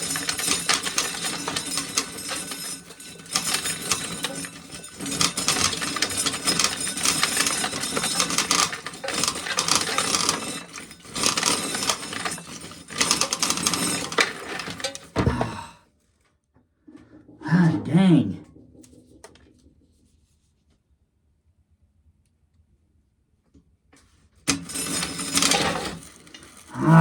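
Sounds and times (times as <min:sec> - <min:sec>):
corn sheller rattling clatter: 0:00.0 - 0:15.2, 0:24.5 - 0:26.7.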